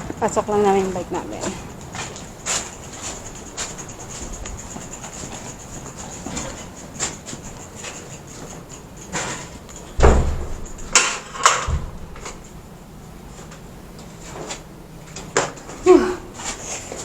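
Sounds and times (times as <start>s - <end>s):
bicycles knocking and rattling: 0.0s - 17.0s
heavy thump: 10.0s - 11.0s, 11.6s - 12.4s.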